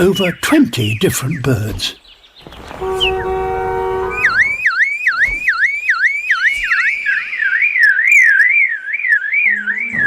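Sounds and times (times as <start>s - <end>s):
lyrebird mimicking car alarm: 2.7s - 10.0s.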